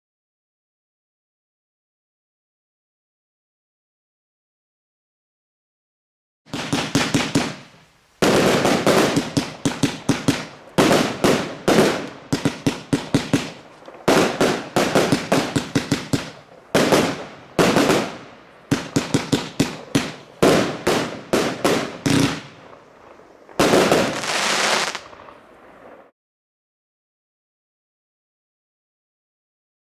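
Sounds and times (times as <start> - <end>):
firework bangs and crackles: 6.5 - 26.1
hissing firework crackle: 6.5 - 26.1.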